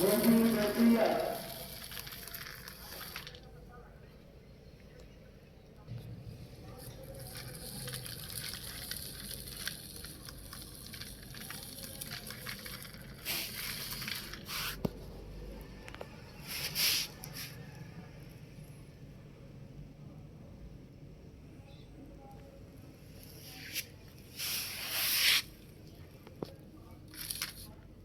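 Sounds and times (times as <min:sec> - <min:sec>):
toy vehicles rolling over gravel: 0:00.0 - 0:03.5, 0:06.6 - 0:14.9, 0:27.0 - 0:27.8.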